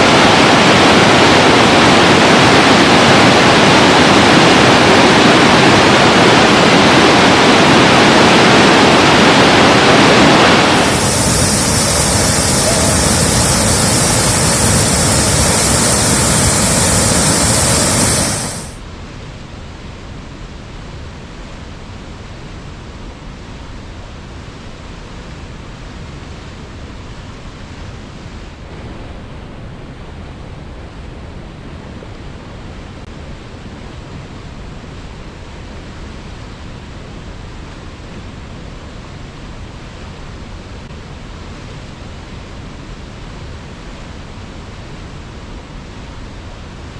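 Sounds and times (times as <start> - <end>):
waterfall rushing: 8.7 - 18.8.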